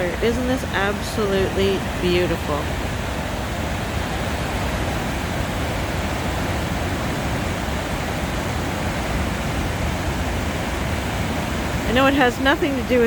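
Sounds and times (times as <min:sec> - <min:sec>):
water rushing over dam spillway: 0:00.0 - 0:13.0.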